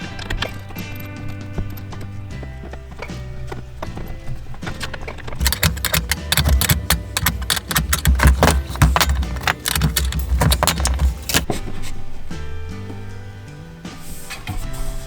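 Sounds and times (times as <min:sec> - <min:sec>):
clattering of metal tools: 0:05.4 - 0:11.5.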